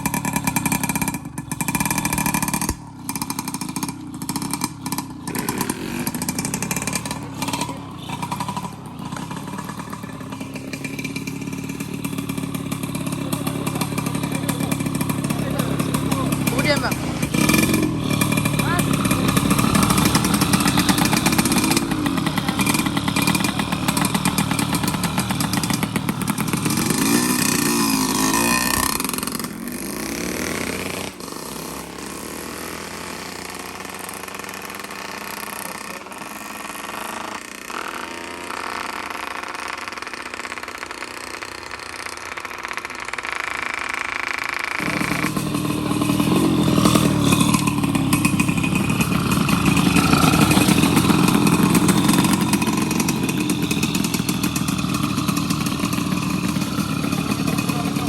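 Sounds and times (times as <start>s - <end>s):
racing motorcycles revving: 0.0s - 58.0s.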